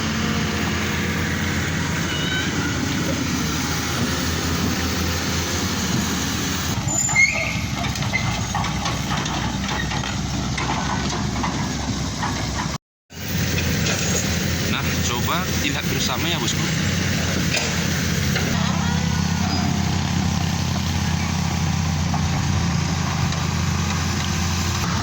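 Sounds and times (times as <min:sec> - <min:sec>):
heavy diesel engines running: 0:00.0 - 0:25.0
high squeak: 0:06.8 - 0:08.4.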